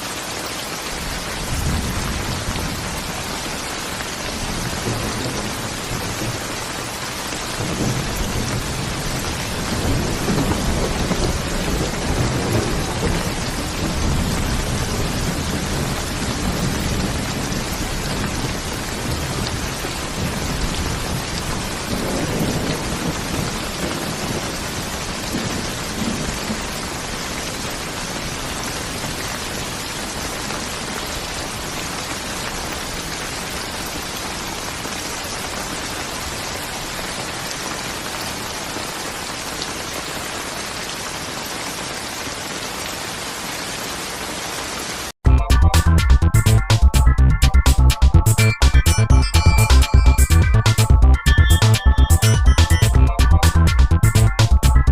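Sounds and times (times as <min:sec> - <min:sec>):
heavy rain hissing: 0:00.0 - 0:45.2
distant thunder rumbling: 0:04.4 - 0:06.7, 0:07.5 - 0:26.7.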